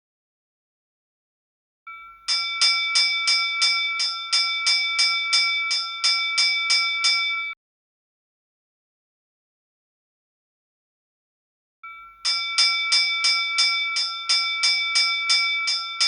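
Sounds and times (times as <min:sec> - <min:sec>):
ship's bell rung rapidly: 0:01.9 - 0:07.6, 0:11.8 - 0:16.0.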